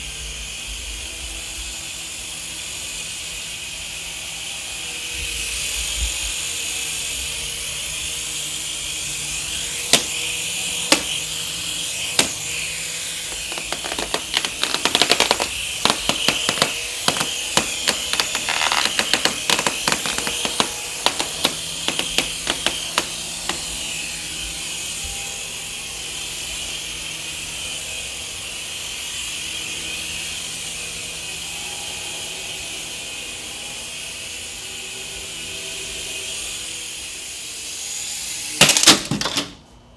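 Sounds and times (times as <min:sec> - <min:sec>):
rc helicopter high-pitched whine: 0:00.0 - 0:39.2
sharp clicks and ticks: 0:10.9 - 0:11.2, 0:13.3 - 0:23.6.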